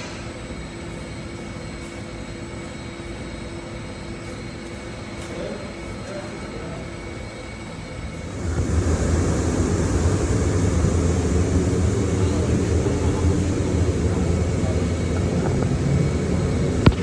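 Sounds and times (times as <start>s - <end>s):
low machine drone: 8.0s - 17.0s.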